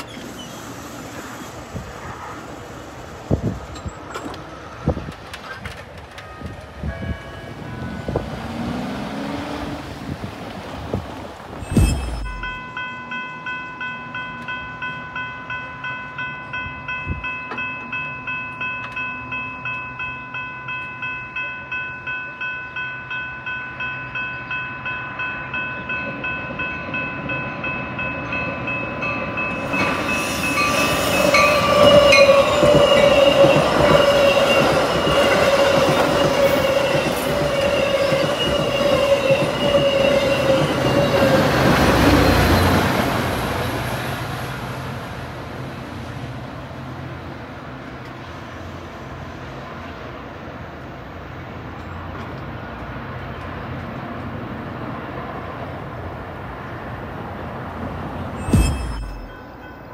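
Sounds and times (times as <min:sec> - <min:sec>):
train rumble and wheel clatter: 0:00.0 - 0:59.9
crossing bell ringing: 0:06.1 - 0:08.9, 0:11.6 - 0:43.0, 0:58.2 - 0:59.9.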